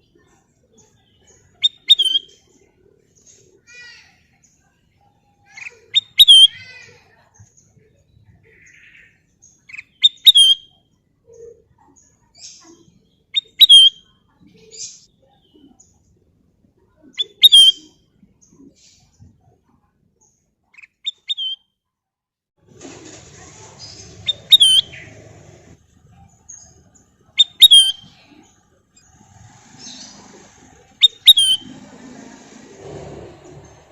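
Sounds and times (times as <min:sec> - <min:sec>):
bird whistled chirps: 0:01.6 - 0:02.4, 0:05.9 - 0:06.5, 0:10.0 - 0:10.7, 0:13.4 - 0:14.1, 0:17.2 - 0:17.9, 0:21.1 - 0:21.7, 0:24.3 - 0:25.1, 0:27.4 - 0:28.2, 0:31.0 - 0:31.7
rustling or fluttering: 0:22.6 - 0:26.0.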